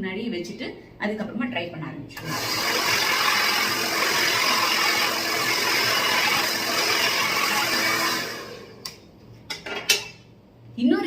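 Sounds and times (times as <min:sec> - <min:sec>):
hair dryer blowing: 0:02.2 - 0:08.8.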